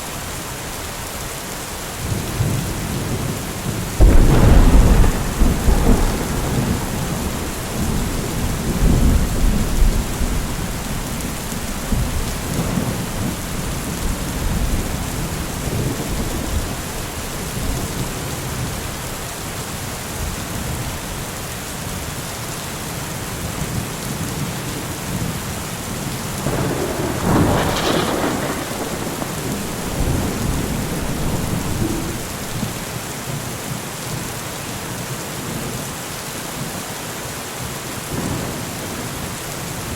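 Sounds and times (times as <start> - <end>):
steady rain falling: 0.0 - 39.9
thunder rumbling: 2.0 - 19.0, 26.2 - 33.0.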